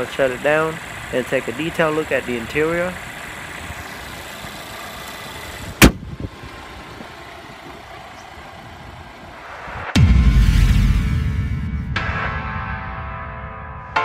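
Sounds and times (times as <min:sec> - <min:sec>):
car engine idling: 0:00.0 - 0:10.6
sharp slam: 0:05.8 - 0:06.0, 0:09.5 - 0:12.5.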